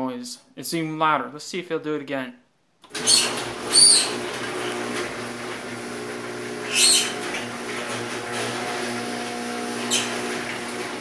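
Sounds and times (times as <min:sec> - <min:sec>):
garage door motor humming: 0:02.9 - 0:11.0
high chirping squeal: 0:03.0 - 0:04.2, 0:06.7 - 0:07.2, 0:09.9 - 0:10.2.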